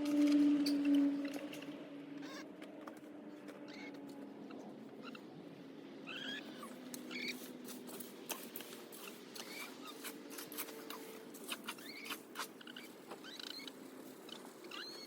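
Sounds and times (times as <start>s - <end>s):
pecking and scratching clicks: 6.8s - 15.0s.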